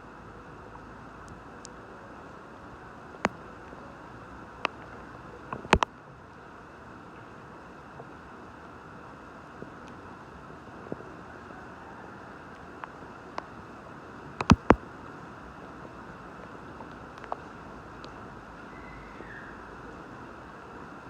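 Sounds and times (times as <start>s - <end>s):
steady rain: 0.0s - 21.0s
loud sharp taps: 14.4s - 14.8s.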